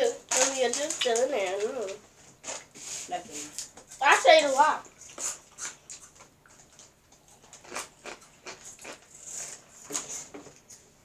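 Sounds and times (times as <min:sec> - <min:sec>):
chewing crunchy snacks: 0:04.9 - 0:10.8.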